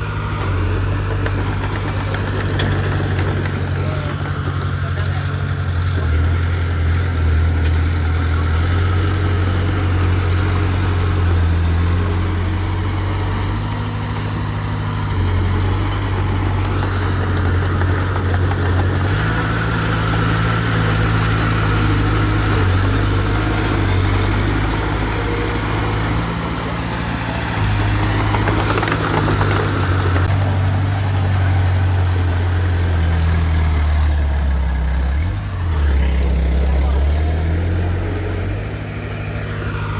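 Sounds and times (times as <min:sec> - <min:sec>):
heavy diesel engine droning: 0:00.0 - 0:39.9.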